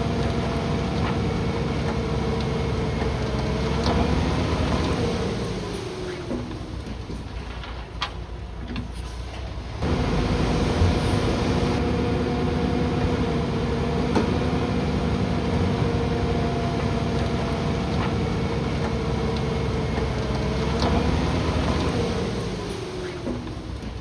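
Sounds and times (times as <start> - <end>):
heavy diesel machinery whining: 9.8 - 24.0.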